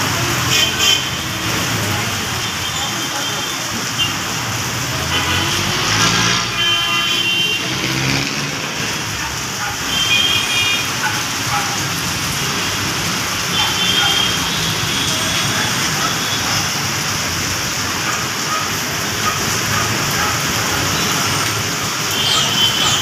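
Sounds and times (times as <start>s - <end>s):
heavy vehicle engine passing: 4.8s - 6.6s, 7.6s - 9.5s.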